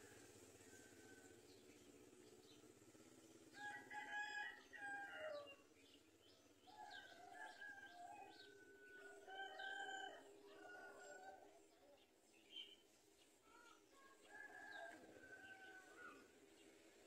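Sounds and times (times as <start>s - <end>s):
faint high bird chirps: 11.8s - 14.8s.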